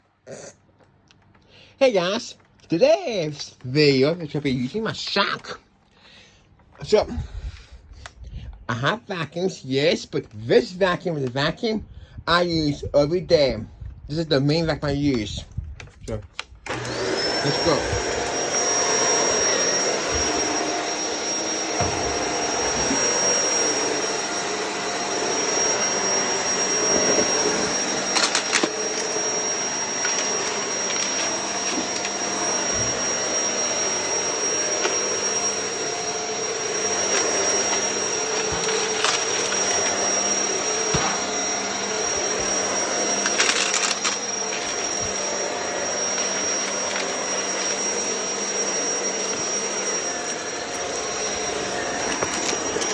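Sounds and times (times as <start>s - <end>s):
vacuum cleaner motor whine: 16.5s - 52.9s.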